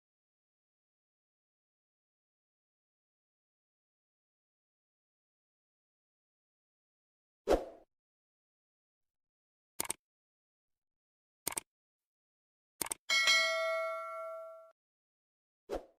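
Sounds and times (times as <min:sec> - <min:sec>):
quick double clicks: 0:09.8 - 0:10.0, 0:11.4 - 0:11.7, 0:12.8 - 0:13.0
bright bell-like ding: 0:13.1 - 0:14.8.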